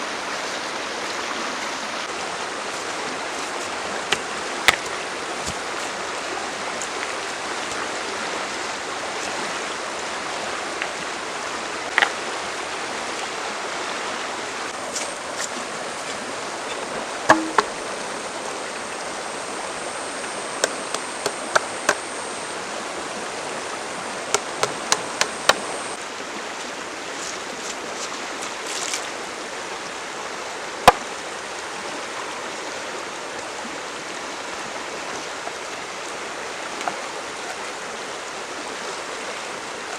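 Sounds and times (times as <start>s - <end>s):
stream rushing: 0.0s - 39.9s
sharp knocks and clicks: 16.7s - 17.8s, 20.4s - 22.2s, 24.3s - 26.0s.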